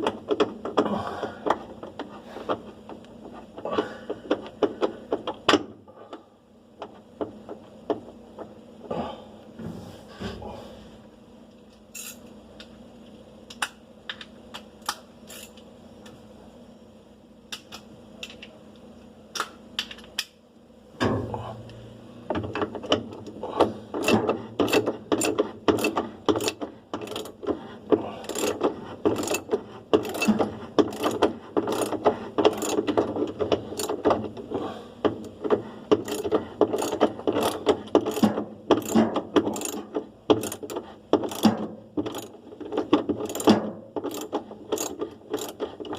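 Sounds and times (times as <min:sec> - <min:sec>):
hand tool clicking: 0:28.2 - 0:33.1, 0:35.9 - 0:45.9.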